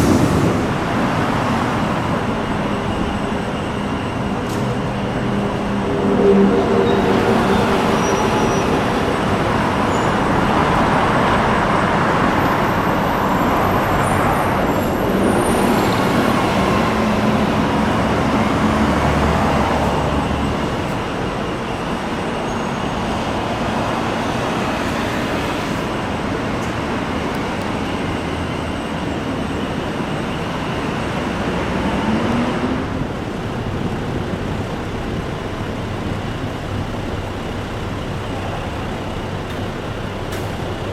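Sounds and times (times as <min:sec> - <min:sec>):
road traffic: 0:00.0 - 0:40.9
streetcar running: 0:00.0 - 0:40.9.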